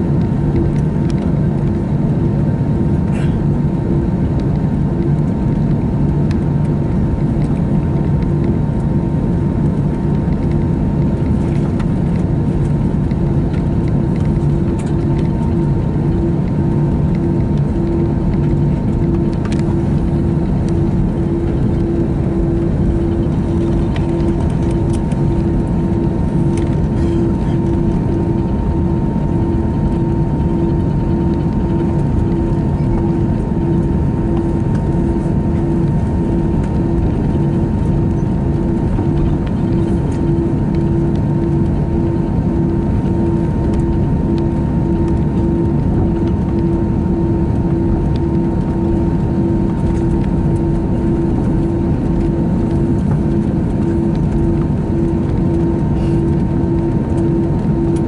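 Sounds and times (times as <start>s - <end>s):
aircraft cabin rumble: 0.0s - 58.0s
faint steady whine: 0.0s - 58.0s
pulsing engine hum: 0.0s - 58.0s.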